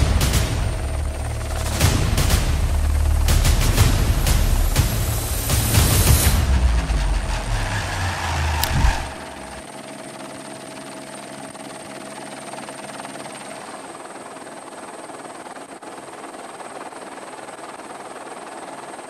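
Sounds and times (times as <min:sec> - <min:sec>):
loud low rumble: 0:00.0 - 0:09.6
steady mechanical drone: 0:00.0 - 0:19.0.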